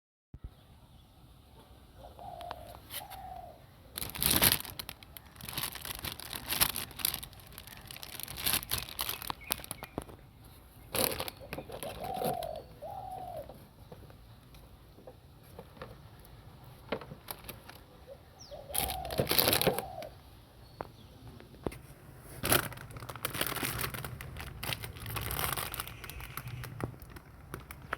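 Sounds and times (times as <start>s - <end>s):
rustling and crinkling: 2.2s - 18.0s, 18.6s - 20.2s, 20.8s - 27.9s
short cooing calls: 18.1s - 20.2s.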